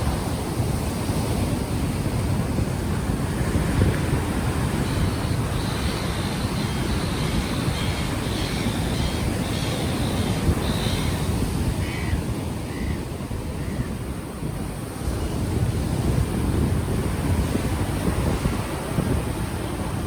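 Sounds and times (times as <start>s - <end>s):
ocean waves on the shore: 0.0s - 20.0s
wind buffeting microphone: 0.0s - 20.0s.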